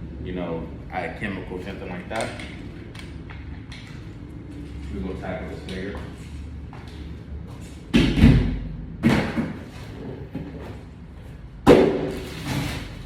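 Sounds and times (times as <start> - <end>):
heavy equipment thumps: 7.9 - 9.7.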